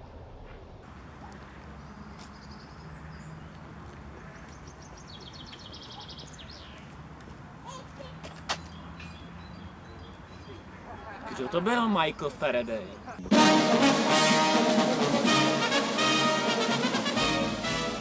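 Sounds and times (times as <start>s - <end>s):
songbird singing rapid trills: 4.2s - 7.0s, 8.6s - 11.1s.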